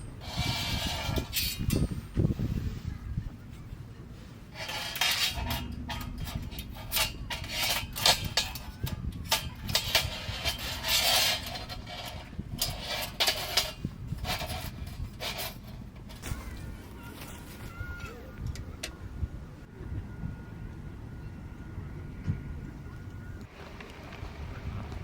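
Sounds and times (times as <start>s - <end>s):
hard objects clattering and scraping: 4.4s - 18.1s.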